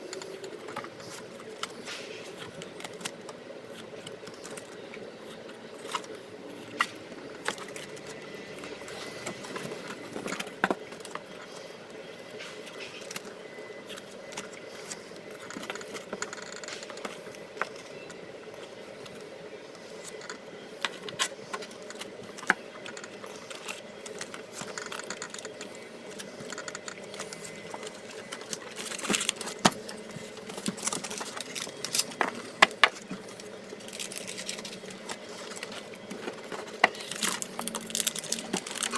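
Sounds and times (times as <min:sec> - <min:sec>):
steady mechanical hum: 0:00.0 - 0:38.9
packet rustling: 0:12.6 - 0:38.9.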